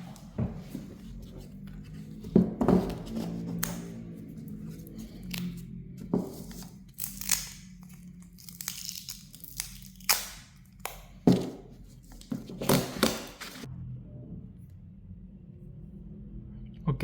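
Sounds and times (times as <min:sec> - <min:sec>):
thin plastic rustling and tearing: 0:06.4 - 0:10.9.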